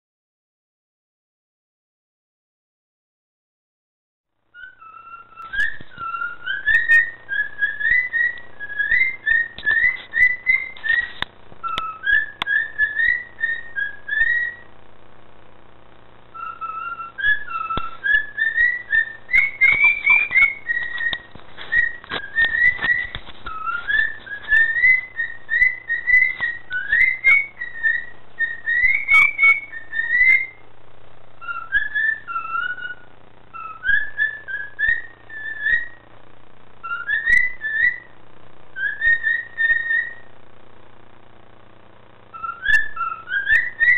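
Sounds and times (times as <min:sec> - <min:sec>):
cockatiel whistling: 0:04.5 - 0:14.7, 0:16.3 - 0:30.6, 0:31.4 - 0:36.0, 0:36.8 - 0:40.3, 0:42.3 - 0:43.9.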